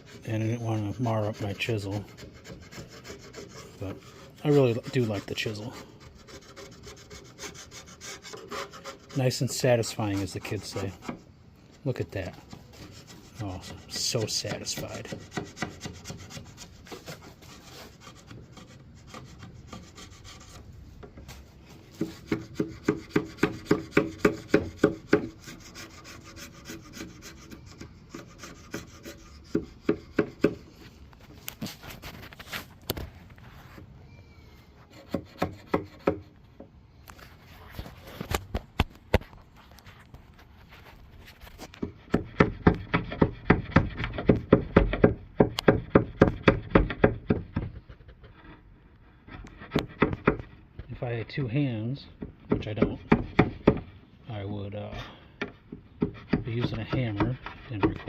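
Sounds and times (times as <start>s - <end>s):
chisel scraping glue off wood: 0.0s - 21.2s, 21.9s - 30.8s, 34.9s - 36.4s, 41.5s - 48.7s, 49.3s - 50.9s, 52.2s - 54.0s, 55.4s - 58.0s.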